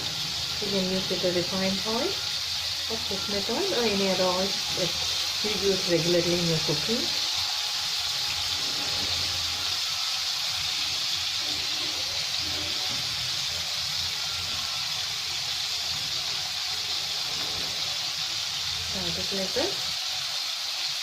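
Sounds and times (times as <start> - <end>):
fish sizzling in a pan: 0.0 - 21.0.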